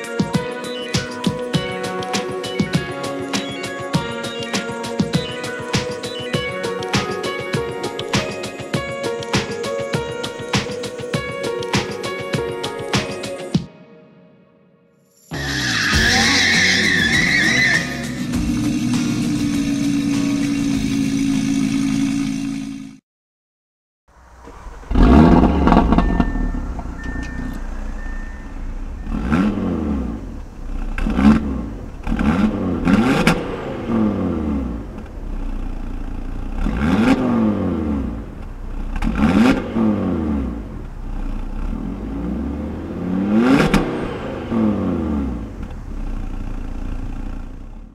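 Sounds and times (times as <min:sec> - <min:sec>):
car engine revving: 0:15.4 - 0:23.0, 0:24.2 - 0:47.9.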